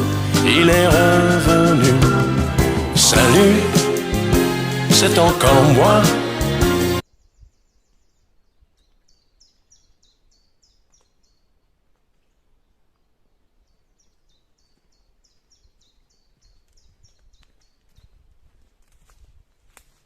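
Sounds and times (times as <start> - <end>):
songbird singing faintly: 7.0 - 18.3.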